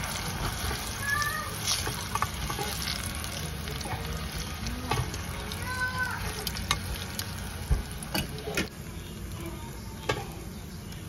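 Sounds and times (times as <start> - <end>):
spatula scraping a pan: 0.0 - 3.1
food deep-frying in oil: 0.0 - 11.0.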